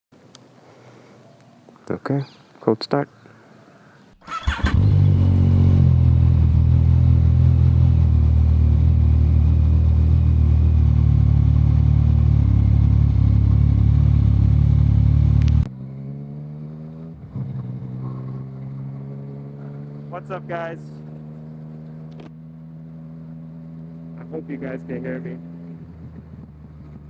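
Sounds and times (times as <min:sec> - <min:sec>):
motorcycle engine idling: 0:04.1 - 0:15.7.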